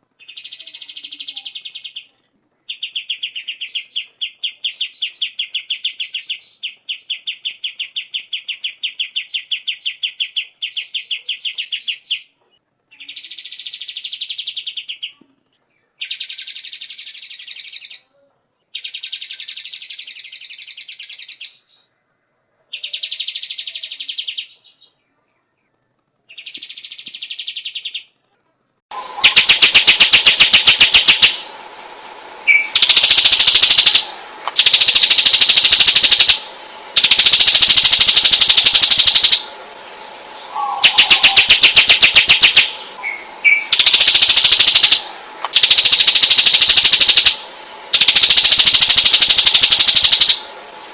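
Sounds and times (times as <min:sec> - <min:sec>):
harsh rattling bird call: 0:00.0 - 0:02.1, 0:16.0 - 0:18.0, 0:18.8 - 0:21.6, 0:28.9 - 0:50.9
songbird trills and phrases: 0:00.2 - 0:12.2, 0:12.9 - 0:20.0, 0:22.7 - 0:28.1.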